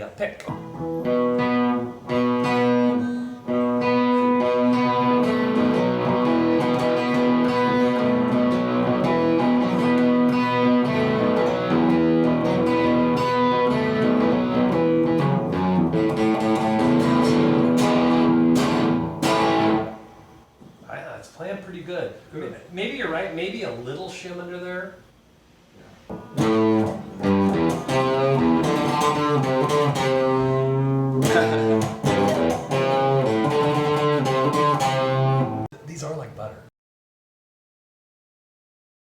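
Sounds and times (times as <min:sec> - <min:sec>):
electric guitar lead lines: 0:00.5 - 0:20.5, 0:26.1 - 0:35.7.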